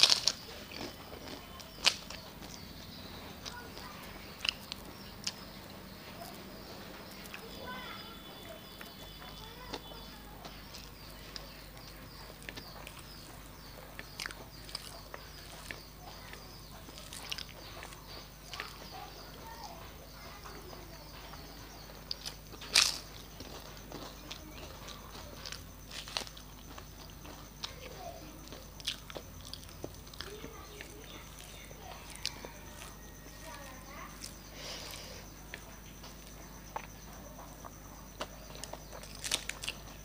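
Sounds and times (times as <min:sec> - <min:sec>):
sharp crunch: 0:00.0 - 0:02.6, 0:22.1 - 0:27.8, 0:37.6 - 0:40.0
chewing and lip smacks: 0:00.0 - 0:02.7, 0:03.4 - 0:06.5, 0:08.4 - 0:19.5, 0:28.5 - 0:34.4, 0:35.5 - 0:40.0
steady low hum: 0:00.0 - 0:40.0.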